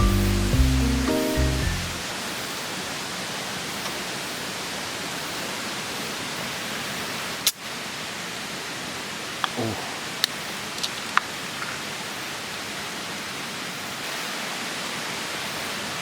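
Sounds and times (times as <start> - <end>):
stream flowing: 0.0 - 16.0.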